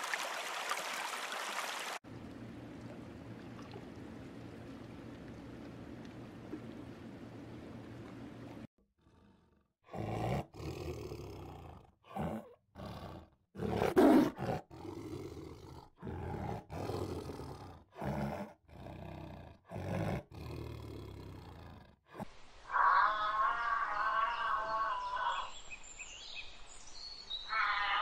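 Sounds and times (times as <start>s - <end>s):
tiger roaring: 9.0s - 22.0s.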